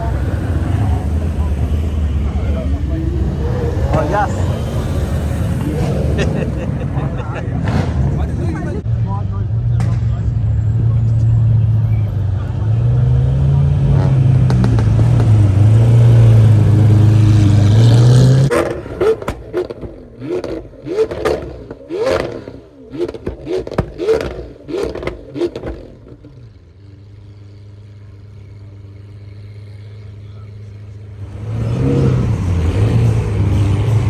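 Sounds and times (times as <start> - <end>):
engine idling: 0.0 - 8.8, 18.7 - 34.0
car engine drone: 0.0 - 34.0
engine revving: 0.0 - 34.0.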